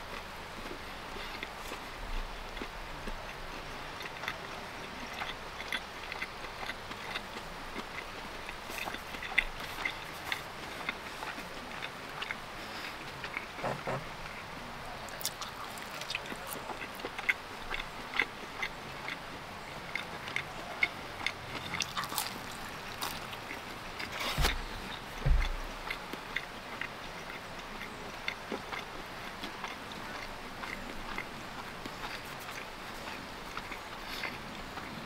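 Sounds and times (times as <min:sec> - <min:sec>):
crunchy chewing of pizza: 0:00.0 - 0:35.0
low thuds against microphone: 0:24.3 - 0:25.8.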